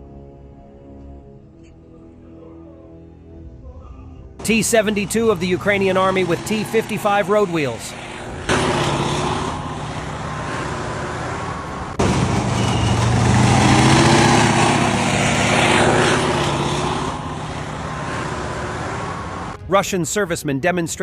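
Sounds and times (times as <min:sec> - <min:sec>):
tank diesel engine droning: 0:00.0 - 0:19.9
rushing noise: 0:04.4 - 0:19.6.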